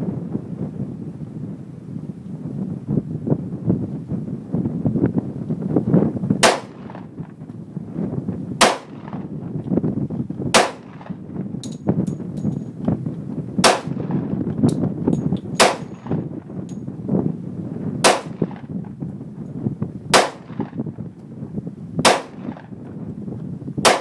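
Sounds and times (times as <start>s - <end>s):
wind on microphone: 0.0s - 24.0s
pistol shots: 6.4s - 7.2s, 8.6s - 9.3s, 10.5s - 11.2s, 13.6s - 14.2s, 15.6s - 16.2s, 18.0s - 18.7s, 20.1s - 20.8s, 22.0s - 22.7s.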